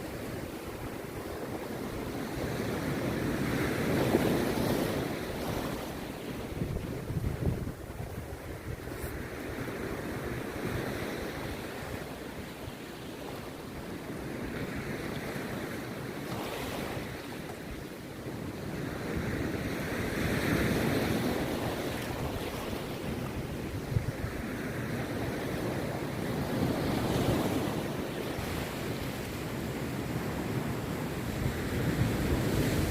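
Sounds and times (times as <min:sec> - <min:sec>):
wind buffeting microphone: 0:00.0 - 0:12.2, 0:13.8 - 0:32.9
sea surf breaking: 0:18.6 - 0:32.9.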